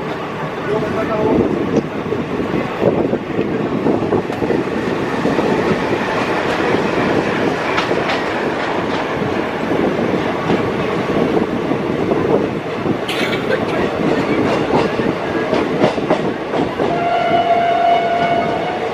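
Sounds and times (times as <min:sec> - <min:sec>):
train coaches rumbling on track: 0:00.0 - 0:18.9
wheels clacking over rail joints: 0:04.2 - 0:11.0, 0:13.1 - 0:16.9.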